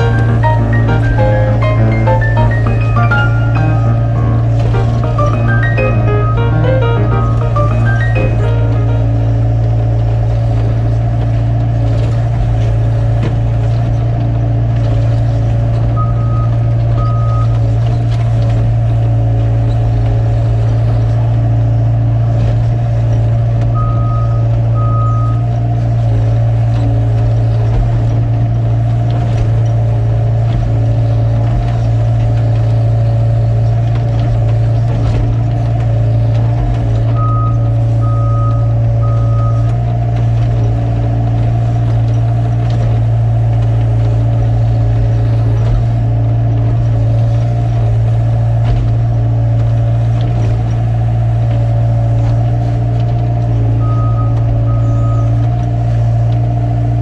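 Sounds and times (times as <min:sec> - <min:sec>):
excavator diesel engine running: 0:00.0 - 0:09.9.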